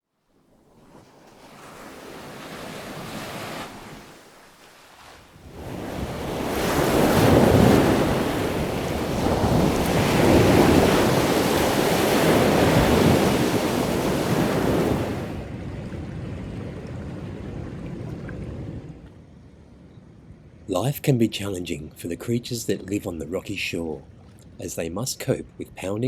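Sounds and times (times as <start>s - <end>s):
wind: 0.0s - 26.0s
waves washing over rocky shore: 1.0s - 15.6s.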